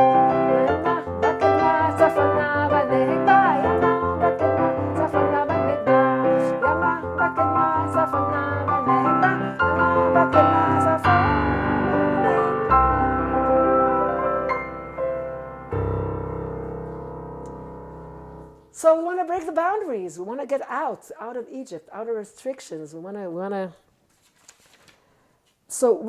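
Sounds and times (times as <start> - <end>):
keyboard piano melody over chords: 0.0 - 18.7.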